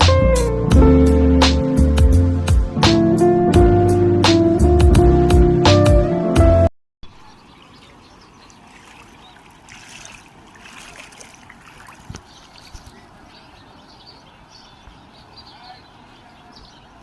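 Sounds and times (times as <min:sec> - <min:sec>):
background music: 0:00.0 - 0:06.7
faint bird calls: 0:07.1 - 0:17.0
flowing water: 0:07.1 - 0:17.0.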